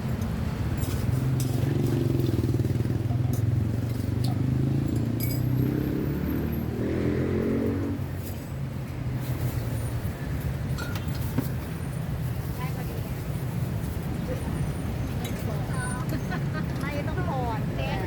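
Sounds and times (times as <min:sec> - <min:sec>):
vehicle passing: 0:01.2 - 0:09.6.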